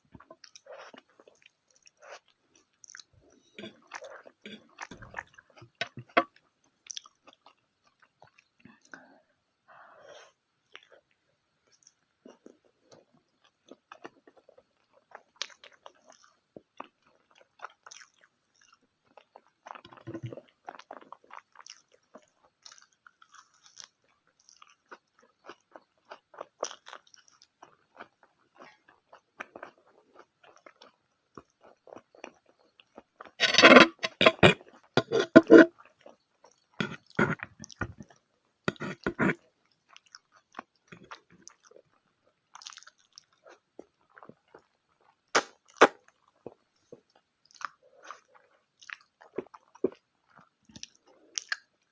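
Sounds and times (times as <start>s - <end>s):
soft chewing: 0.0s - 51.9s
wet mouth clicks: 33.4s - 35.7s, 45.4s - 46.0s.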